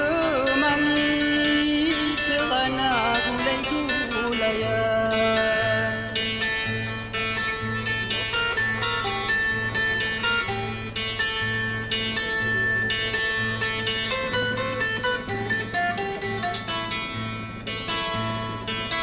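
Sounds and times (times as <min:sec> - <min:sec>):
plucked guitar melody: 0:00.0 - 0:19.0.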